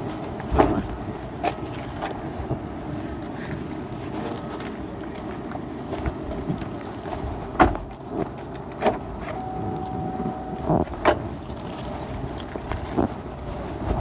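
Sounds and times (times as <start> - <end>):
steady vehicle noise: 0.0 - 14.0
short steady beep: 9.4 - 10.8.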